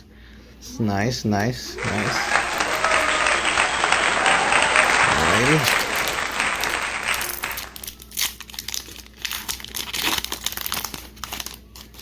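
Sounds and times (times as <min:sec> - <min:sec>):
foil wrapper crinkling: 0:07.8 - 0:12.0.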